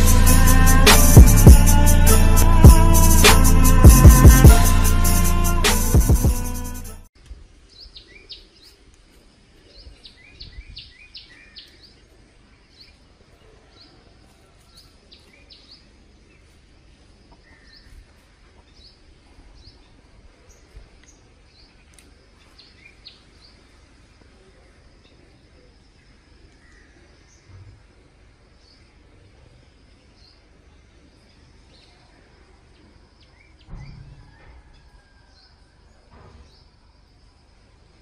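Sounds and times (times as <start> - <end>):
intro music: 0.0 - 7.1
faint outdoor hiss: 7.2 - 38.0
small birds chirping: 7.6 - 38.0.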